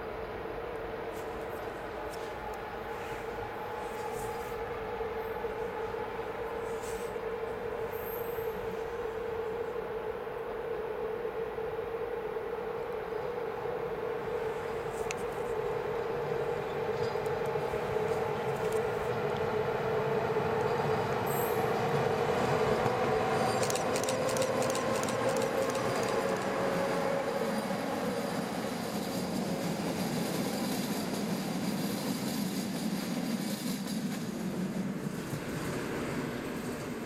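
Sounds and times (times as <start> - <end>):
electric train passing at speed: 0.0 - 37.0
train wheel clicks: 22.8 - 27.0.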